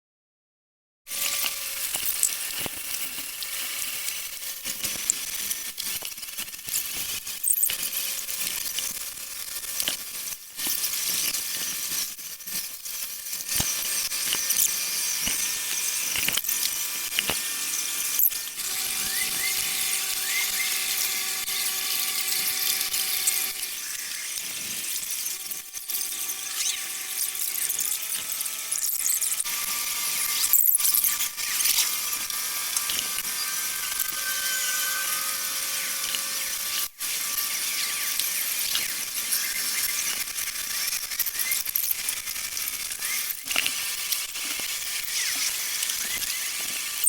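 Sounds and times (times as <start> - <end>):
high-pitched hiss and whine: 13.6 - 43.4
steady tones: 17.0 - 36.8.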